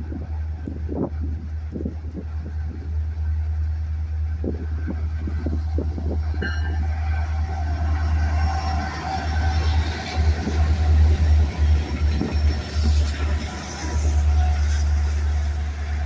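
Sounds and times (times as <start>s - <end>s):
diesel locomotive rumble: 0.0s - 16.0s
wind buffeting microphone: 0.0s - 16.0s
brief high tone: 6.4s - 6.9s.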